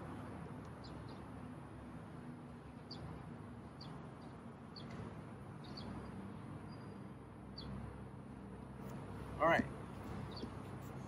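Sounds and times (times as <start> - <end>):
small bird chirping: 5.6 - 7.8, 10.2 - 10.6.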